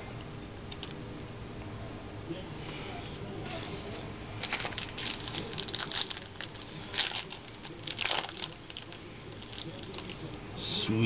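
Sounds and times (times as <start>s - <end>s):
wrapper crinkling: 4.4s - 10.3s
cards rustling: 4.4s - 10.4s.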